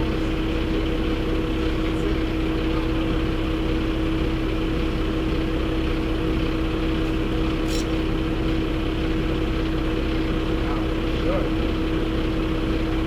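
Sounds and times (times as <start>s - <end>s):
truck running noise: 0.0s - 13.0s.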